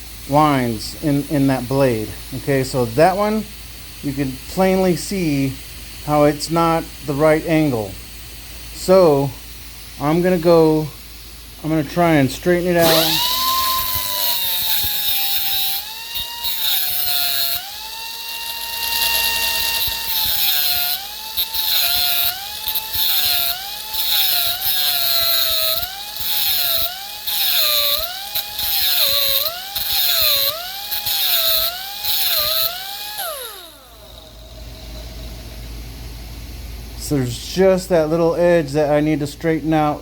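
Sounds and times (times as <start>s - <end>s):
grinding hiss on metal: 0.0s - 36.2s
die grinder whining: 12.5s - 35.8s.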